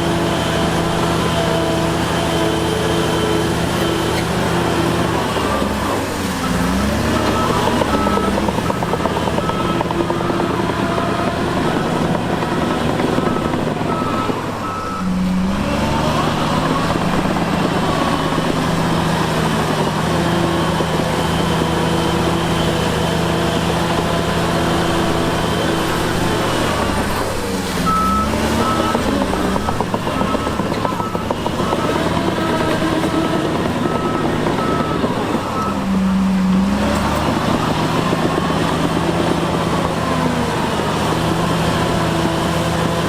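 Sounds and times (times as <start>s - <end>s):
diesel machine engine: 0.0s - 43.0s
reversing alarm beeping: 0.6s - 18.7s, 27.8s - 36.6s.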